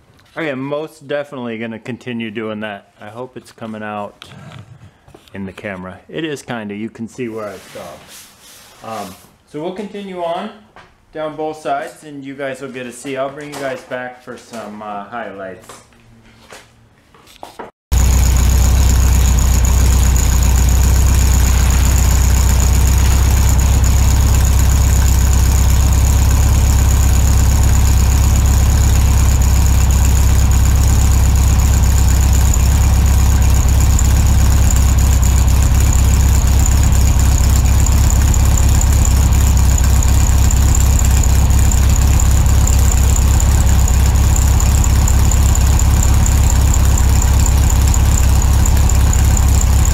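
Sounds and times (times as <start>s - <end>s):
buffing machine drone: 17.9s - 49.9s.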